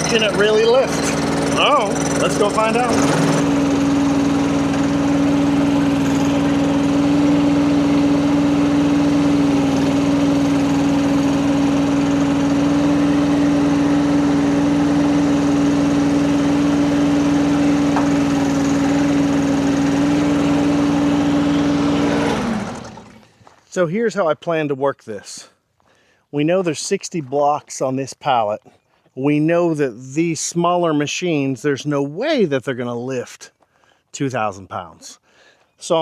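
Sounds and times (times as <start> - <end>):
skid steer engine running: 0.0 - 23.6.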